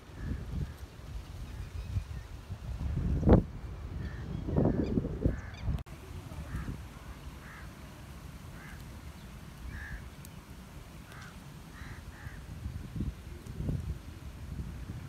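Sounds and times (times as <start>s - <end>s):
birds calling: 4.0s - 5.8s, 6.4s - 13.2s.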